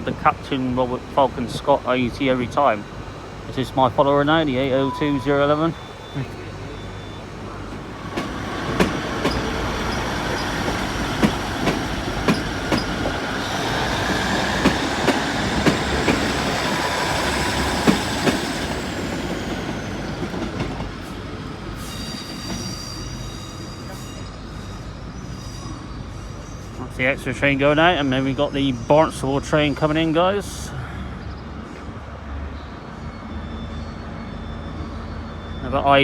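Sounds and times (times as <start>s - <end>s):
high-pitched wheel squeal: 4.7s - 7.3s
train wheels clicking over rail joints: 7.7s - 21.2s.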